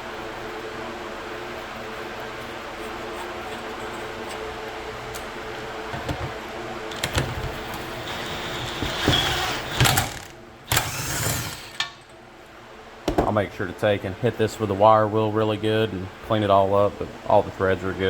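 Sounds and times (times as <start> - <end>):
steady machine hum: 0.0 - 18.0
hand tools clicking on metal: 8.0 - 12.1.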